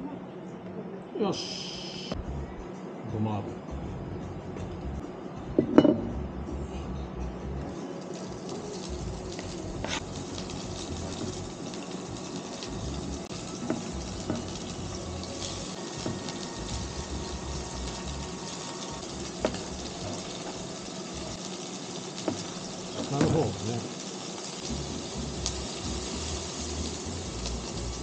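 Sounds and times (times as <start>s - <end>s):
greens sizzling in a pan: 7.7s - 28.0s.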